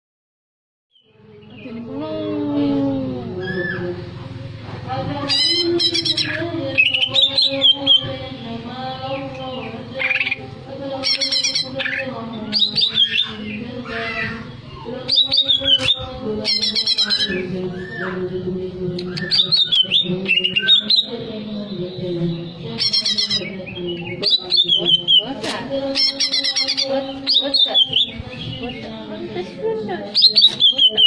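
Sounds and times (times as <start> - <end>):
bird singing loudly: 5.2 - 18.3, 19.0 - 28.9, 30.1 - 31.0.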